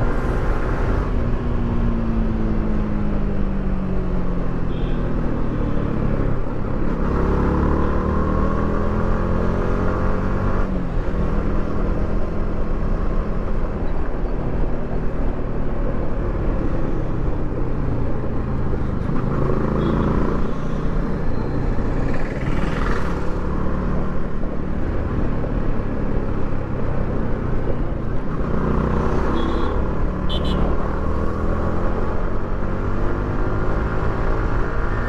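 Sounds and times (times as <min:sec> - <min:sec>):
road and wind noise: 0:00.0 - 0:35.0
motorcycle engine running: 0:18.7 - 0:23.4.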